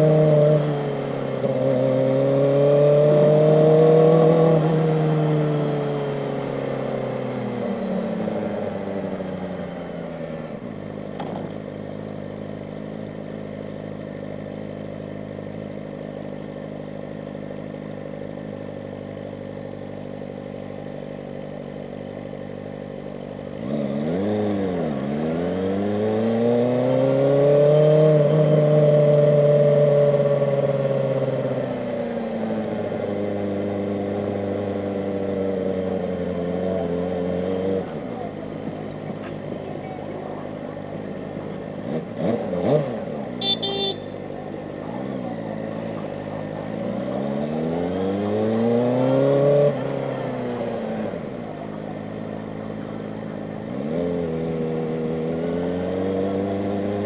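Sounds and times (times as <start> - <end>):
motorcycle engine: 43.4 - 44.2.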